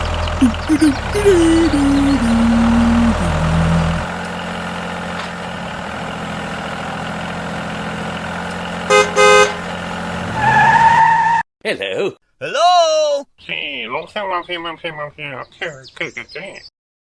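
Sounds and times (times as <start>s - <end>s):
vehicle engine running: 0.0s - 10.3s
rising tone: 0.8s - 4.1s
horn honks: 8.9s - 9.6s.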